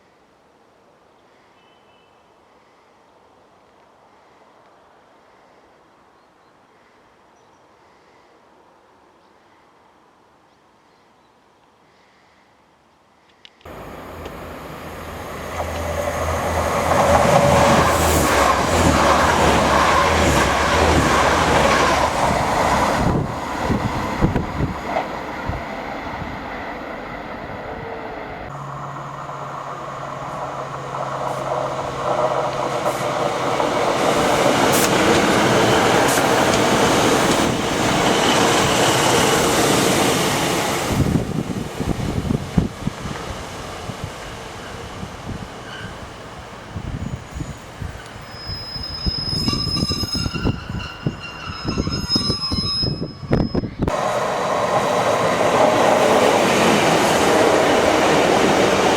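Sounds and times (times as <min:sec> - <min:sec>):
wheel and rail noise: 0:13.5 - 0:58.9
train passing close by: 0:13.7 - 0:58.9.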